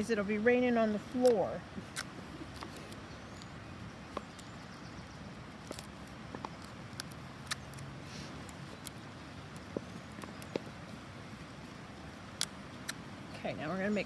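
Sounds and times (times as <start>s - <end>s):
hands handling paper and tape: 1.2s - 3.0s, 5.6s - 13.0s.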